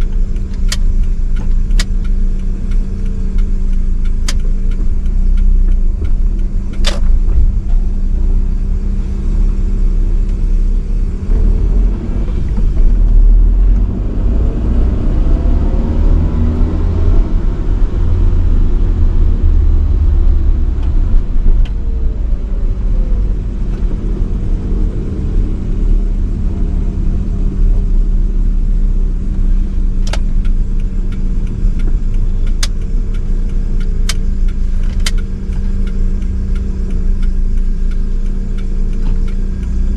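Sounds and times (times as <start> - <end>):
sharp clicks: 0.0 - 7.6, 29.9 - 39.8
car engine and road rumble: 0.0 - 39.9.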